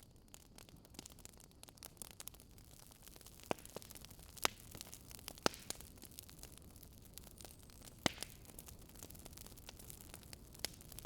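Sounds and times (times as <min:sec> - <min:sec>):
wood fire crackling and popping: 0:00.0 - 0:11.0.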